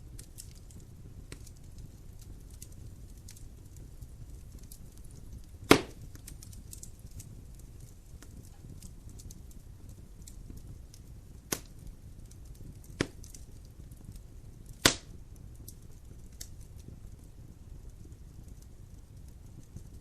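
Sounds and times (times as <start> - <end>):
faint fire crackling: 0.0 - 20.0
low rumble of flames: 0.0 - 20.0
sharp pops from burning logs: 0.0 - 20.0.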